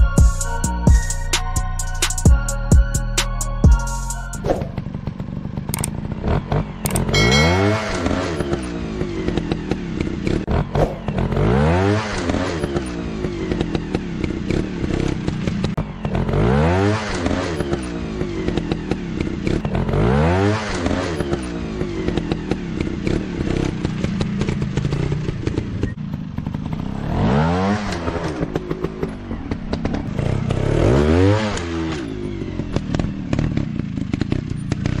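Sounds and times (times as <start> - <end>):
motorcycle engine revving: 4.2 - 35.0
engine clatter: 4.4 - 35.0.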